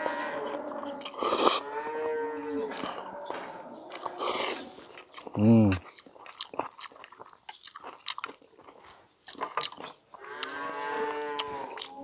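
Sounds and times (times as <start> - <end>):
cow mooing: 0.0 - 4.8, 10.2 - 12.0
chewing with sharp clicks: 0.4 - 12.0.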